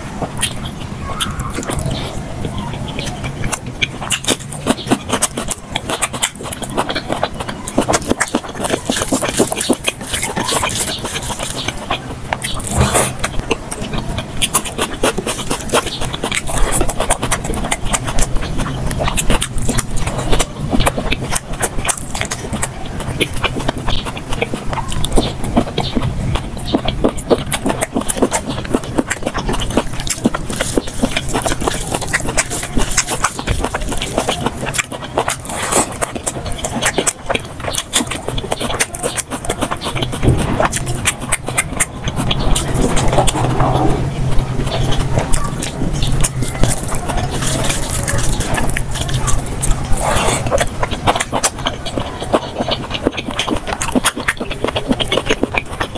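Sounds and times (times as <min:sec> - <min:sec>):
low steady hum: 0:00.0 - 0:55.9
wet chewing clicks and lip smacks: 0:00.0 - 0:55.9
low hum: 0:40.0 - 0:53.8.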